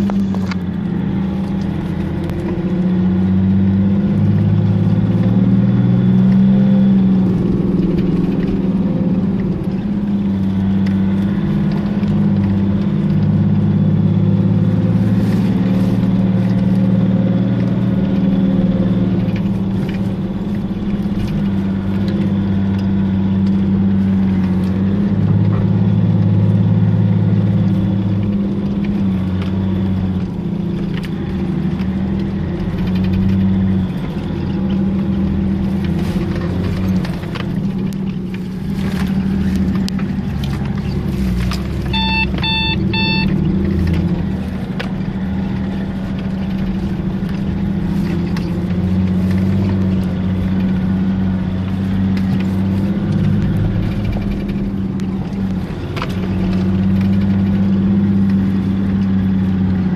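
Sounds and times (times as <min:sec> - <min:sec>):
engine low hum: 0:00.0 - 0:59.9
short electronic beeps: 0:41.9 - 0:43.4.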